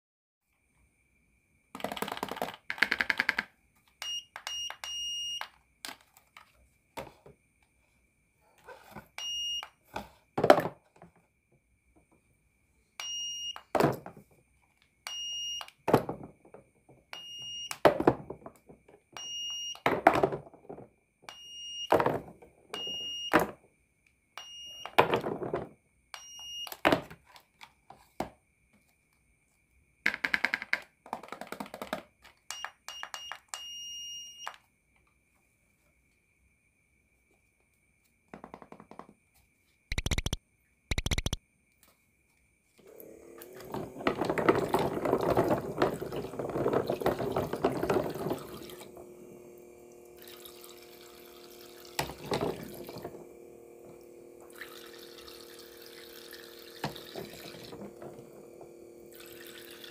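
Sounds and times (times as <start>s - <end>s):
toy cash register beeps: 4.0s - 5.5s, 9.2s - 9.7s, 13.0s - 13.7s, 15.1s - 15.8s, 17.2s - 17.8s, 19.2s - 19.9s, 21.3s - 22.0s, 22.8s - 23.4s, 24.4s - 25.0s, 26.2s - 26.8s, 32.5s - 34.6s, 39.9s - 41.4s, 54.5s - 59.9s.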